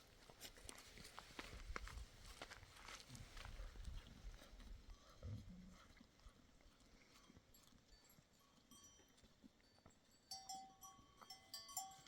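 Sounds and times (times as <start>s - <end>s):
livestock bells clinking: 7.0s - 12.0s.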